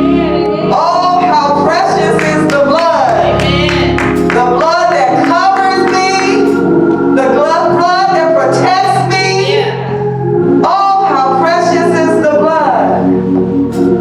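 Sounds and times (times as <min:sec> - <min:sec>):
person singing gospel: 0:00.0 - 0:13.2
instrumental chords: 0:00.0 - 0:14.0.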